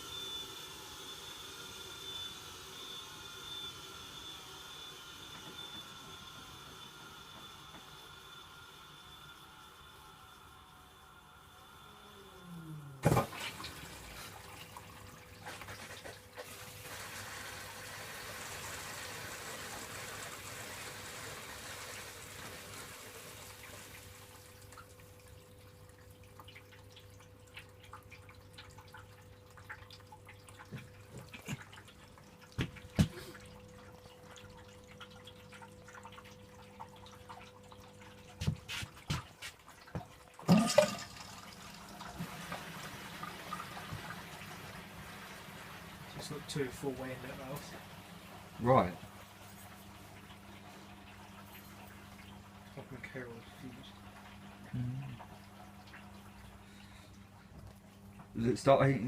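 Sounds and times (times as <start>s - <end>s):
steady machine hum: 0.0s - 15.4s
water rushing into washing machine: 0.0s - 59.0s.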